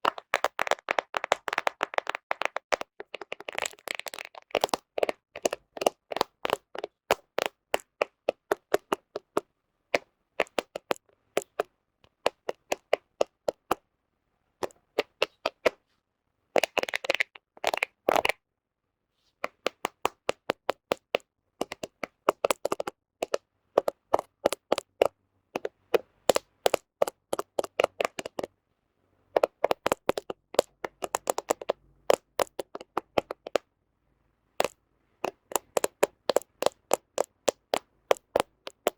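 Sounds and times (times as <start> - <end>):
fingernails tapping on phone: 10.0 - 13.8, 19.4 - 28.5, 29.4 - 33.6, 34.6 - 38.9.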